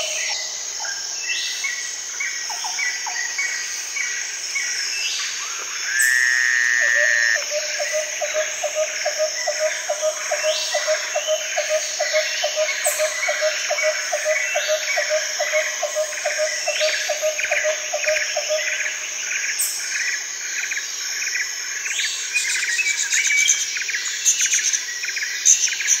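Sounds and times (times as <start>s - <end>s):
high insect drone: 0.0s - 26.0s
low pulsed call: 5.5s - 8.0s
short repeated chirping calls: 5.8s - 7.4s.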